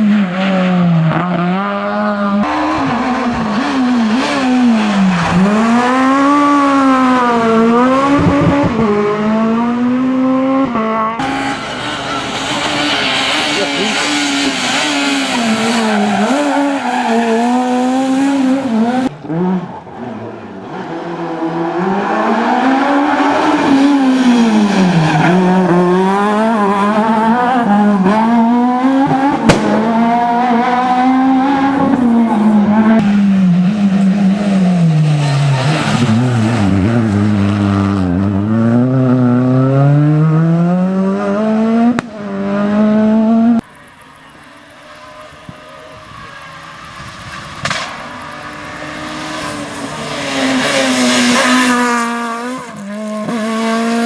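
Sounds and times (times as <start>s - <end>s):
rally car engines revving: 0.0s - 54.0s
sharp crack: 29.4s - 30.0s, 47.6s - 48.1s.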